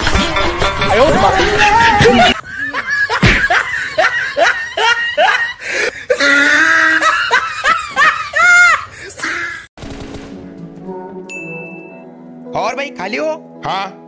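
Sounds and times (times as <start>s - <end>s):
man laughing loudly: 0.0s - 9.3s.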